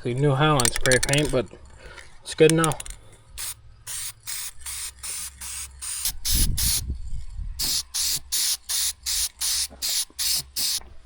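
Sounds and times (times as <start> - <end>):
spray paint can hissing: 3.4 - 6.8, 7.6 - 10.8.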